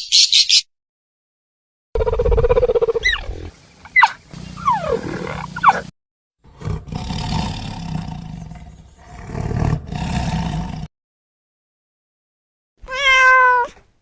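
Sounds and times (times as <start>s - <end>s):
big cat roaring and growling: 4.6s - 5.9s, 6.5s - 10.9s.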